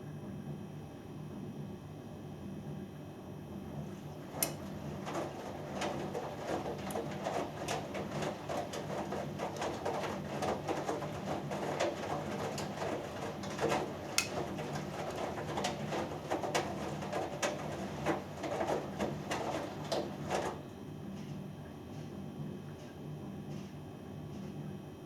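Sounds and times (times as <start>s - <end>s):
washing machine motor hum: 0.0s - 25.0s
water and laundry sloshing: 3.7s - 22.1s.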